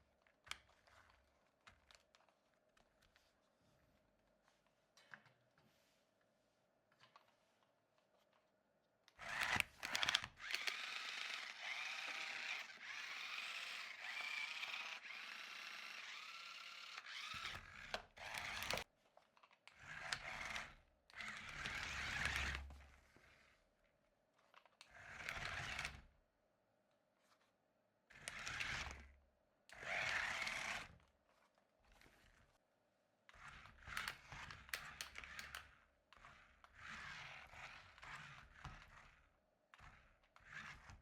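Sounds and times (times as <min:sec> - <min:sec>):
toy car electric motors whirring: 0:09.2 - 0:18.9, 0:19.7 - 0:23.5, 0:24.9 - 0:26.0, 0:28.1 - 0:29.1, 0:29.7 - 0:32.6, 0:33.3 - 0:41.0.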